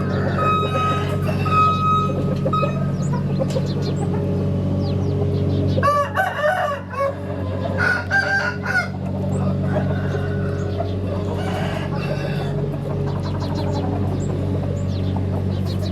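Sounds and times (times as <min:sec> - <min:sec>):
rooster crowing: 0:00.0 - 0:02.9, 0:05.8 - 0:12.7
steady low hum: 0:00.0 - 0:15.9.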